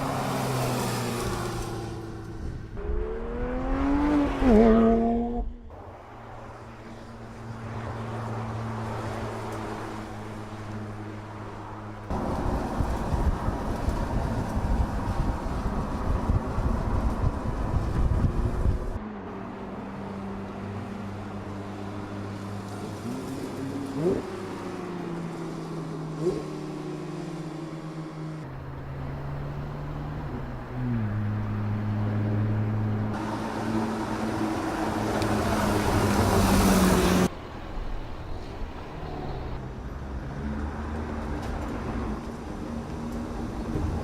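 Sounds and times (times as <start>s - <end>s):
rushing wind noise: 12.1s - 19.0s.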